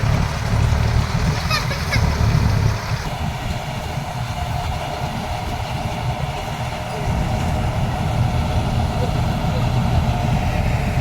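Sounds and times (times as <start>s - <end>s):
combine harvester drone: 0.0s - 11.0s.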